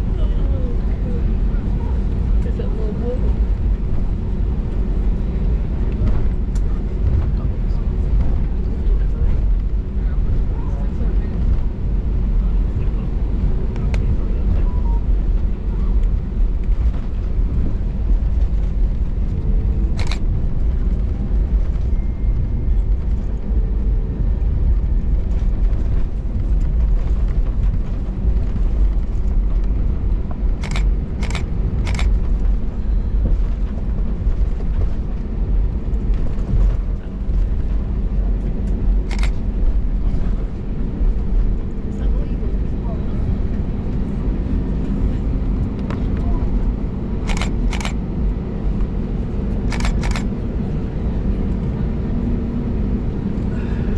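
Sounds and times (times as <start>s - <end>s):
aircraft engines rumbling: 0.0s - 53.9s.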